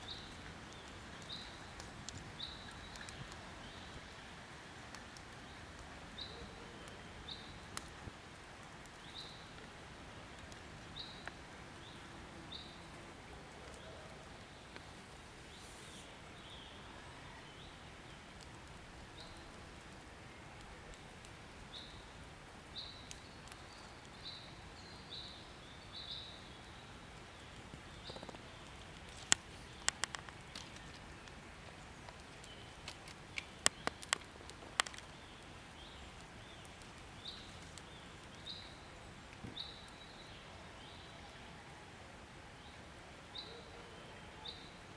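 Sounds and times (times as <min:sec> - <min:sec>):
sharp clicks: 0:32.1 - 0:35.1.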